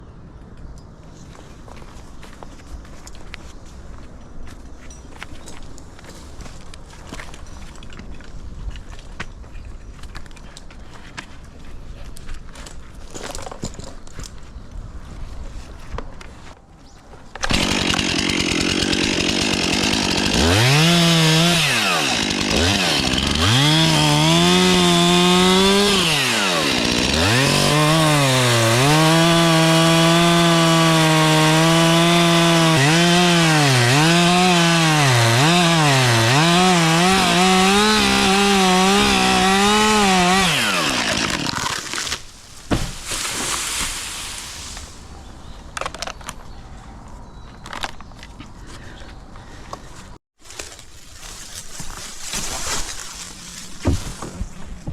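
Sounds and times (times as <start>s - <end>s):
chainsaw cutting branches: 17.4s - 45.0s.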